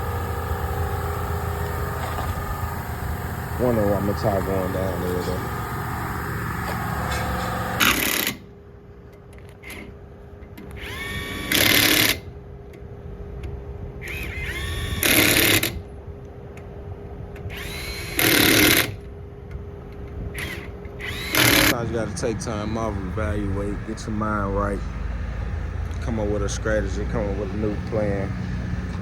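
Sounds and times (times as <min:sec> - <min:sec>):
air impact wrench bursts: 0:00.0 - 0:08.5, 0:10.7 - 0:12.3, 0:14.0 - 0:15.8, 0:17.5 - 0:19.0, 0:20.3 - 0:29.0
impact wrench whine: 0:00.0 - 0:08.5, 0:10.6 - 0:12.3, 0:14.0 - 0:15.9, 0:17.5 - 0:19.1, 0:20.3 - 0:29.0.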